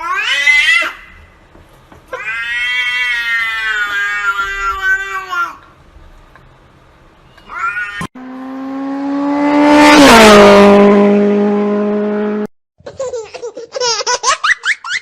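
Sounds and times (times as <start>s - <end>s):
cat yowling: 2.2s - 5.5s, 7.4s - 8.1s.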